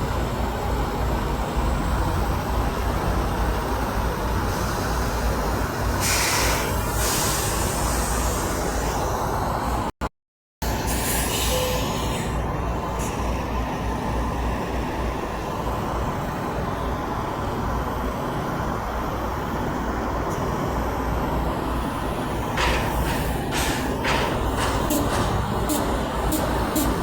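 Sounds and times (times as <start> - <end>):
heavy road traffic rumble: 0.0 - 9.9, 10.6 - 27.0
short hissing bursts: 6.0 - 8.8.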